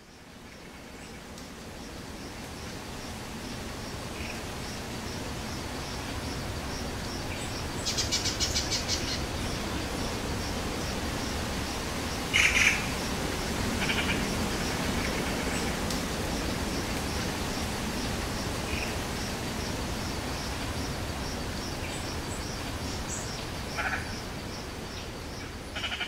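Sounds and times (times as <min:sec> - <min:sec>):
steady hiss: 0:00.0 - 0:26.0
birds calling: 0:05.1 - 0:15.8
rapid trilling call: 0:12.3 - 0:13.1, 0:13.8 - 0:15.7.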